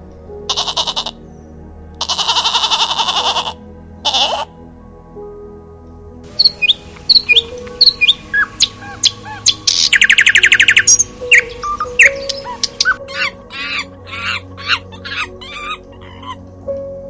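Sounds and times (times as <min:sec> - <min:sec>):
soft background music: 0:00.0 - 0:17.0
bird chirping and trilling: 0:06.3 - 0:16.5.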